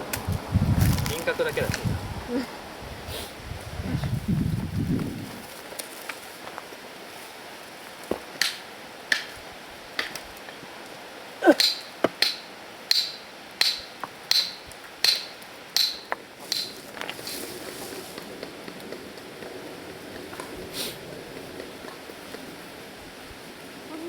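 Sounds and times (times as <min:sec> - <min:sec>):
hand tool striking stony ground: 0:08.1 - 0:09.4, 0:11.5 - 0:17.3.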